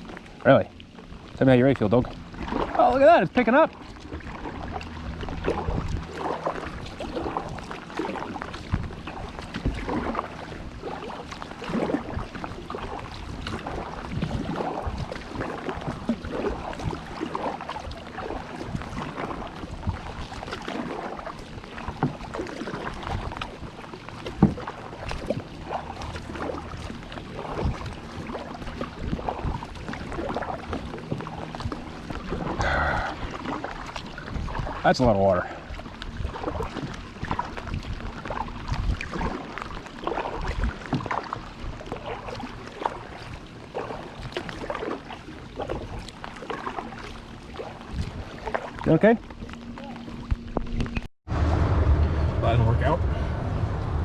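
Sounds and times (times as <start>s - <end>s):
water splashing against kayak: 0.0s - 54.0s
wind rushing: 51.3s - 54.0s.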